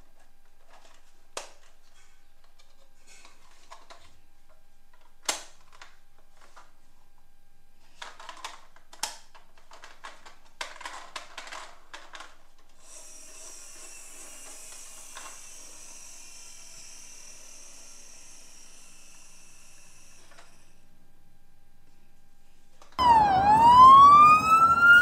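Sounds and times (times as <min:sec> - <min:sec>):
plastic toys clicking and clattering: 0:00.6 - 0:06.7, 0:07.8 - 0:12.8, 0:13.4 - 0:15.4
high-pitched whir: 0:23.0 - 0:25.0.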